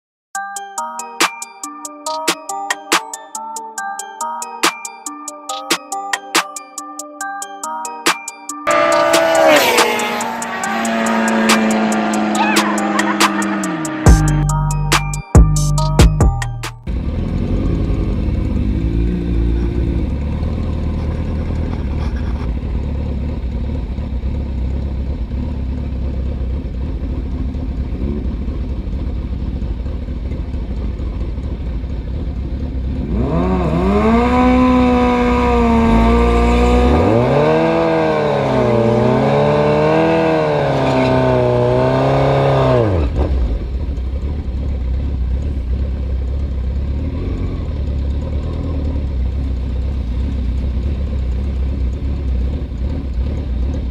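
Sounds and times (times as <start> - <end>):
motorcycle engine revving: 8.7 - 15.8, 16.9 - 53.9
motorcycle engines idling: 10.0 - 15.9, 16.9 - 37.7, 42.8 - 53.9.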